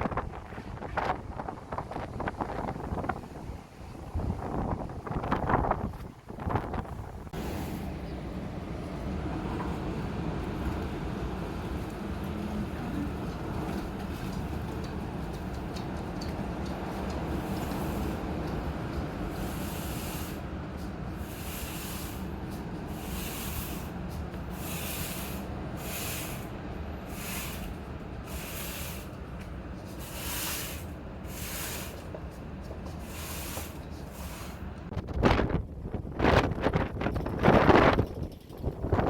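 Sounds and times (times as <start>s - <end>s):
wind gust buffeting microphone: 0.0s - 15.3s, 34.6s - 39.0s
strong storm wind rushing: 0.0s - 31.9s, 33.1s - 39.0s.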